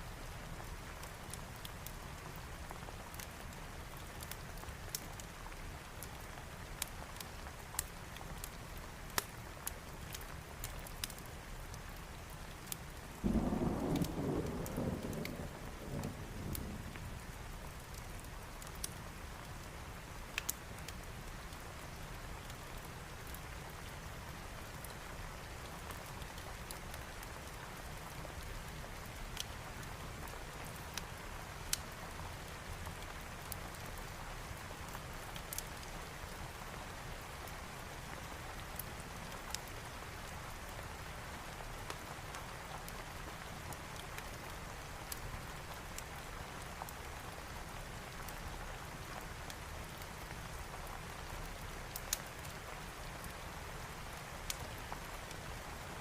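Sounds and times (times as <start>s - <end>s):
steady rain: 0.0s - 56.0s
thunderclap rumbling: 13.2s - 16.9s.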